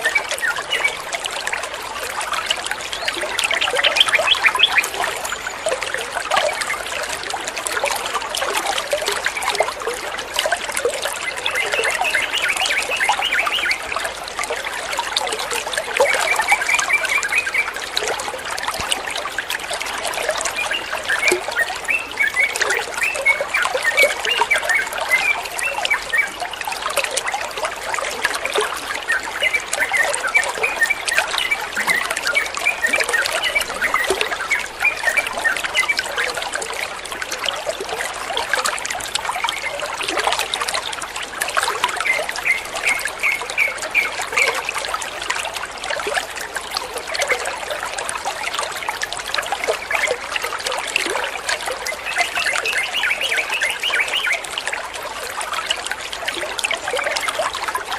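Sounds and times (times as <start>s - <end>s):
water trickling: 0.0s - 57.9s
high bird chirps: 3.0s - 5.0s.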